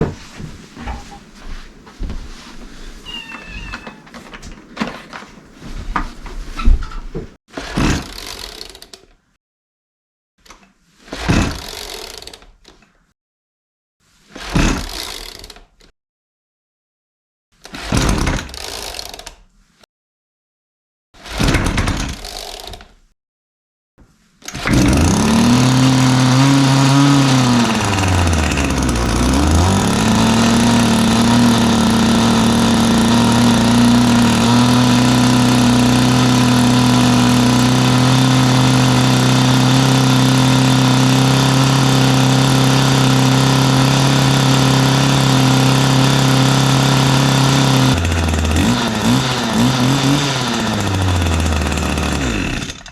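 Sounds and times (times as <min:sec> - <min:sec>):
two-stroke engine running: 0:24.7 - 0:52.9.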